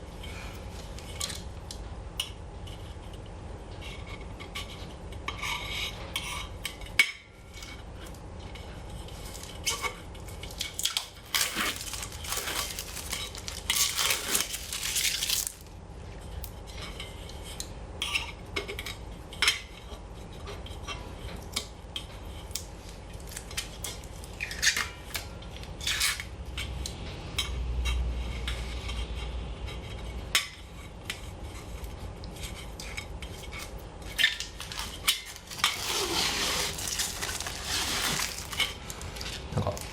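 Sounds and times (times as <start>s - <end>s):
plastic film peeling and crackling: 10.5s - 15.8s, 33.6s - 39.9s.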